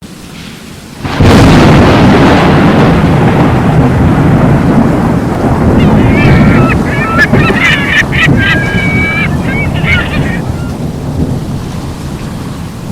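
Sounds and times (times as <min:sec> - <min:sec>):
heavy rain: 0:00.0 - 0:12.9
thunder rumbling: 0:00.6 - 0:12.9
birds honking: 0:05.8 - 0:10.8.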